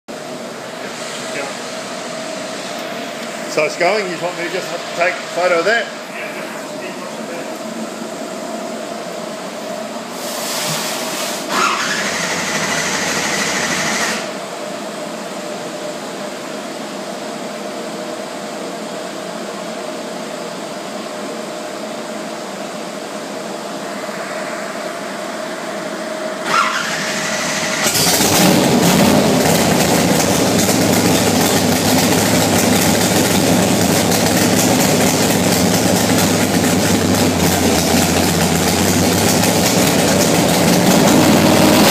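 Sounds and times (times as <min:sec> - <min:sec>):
steady hum with held tone: 0:00.1 - 0:10.2, 0:14.3 - 0:27.8
car engine idling loudly: 0:11.5 - 0:14.4, 0:26.4 - 0:41.9
engine cranking with whine: 0:11.5 - 0:14.4, 0:26.4 - 0:41.9.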